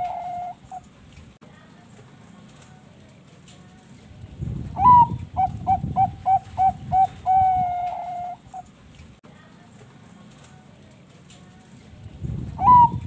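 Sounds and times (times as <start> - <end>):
zebra dove cooing: 0.0 - 0.9, 4.8 - 8.7, 12.6 - 13.0.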